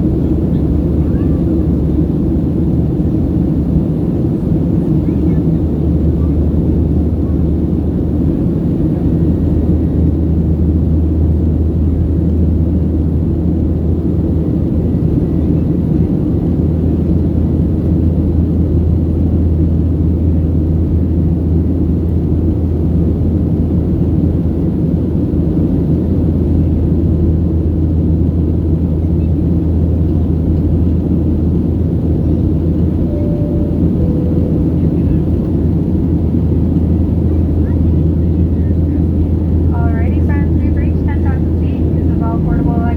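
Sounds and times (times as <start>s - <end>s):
jet engines droning: 27.3s - 42.9s.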